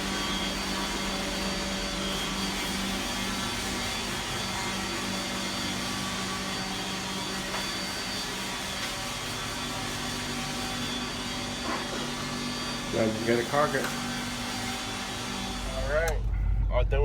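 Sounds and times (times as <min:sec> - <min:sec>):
vacuum machine running: 0:00.0 - 0:17.0.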